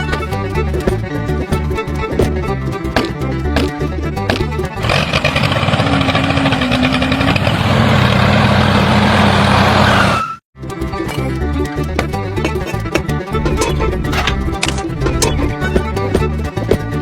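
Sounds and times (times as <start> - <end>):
rhythmic music: 12.2 - 16.9
engine-like running drone: 13.4 - 16.0.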